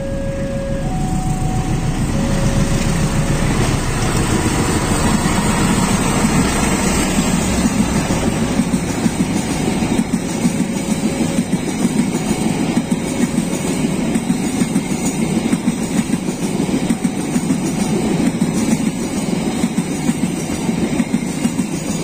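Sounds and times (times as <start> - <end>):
two-note alternating tone: 0.0 - 4.0
locomotive engine rumble: 0.0 - 22.0
train wheels clattering over rail joints: 2.5 - 22.0.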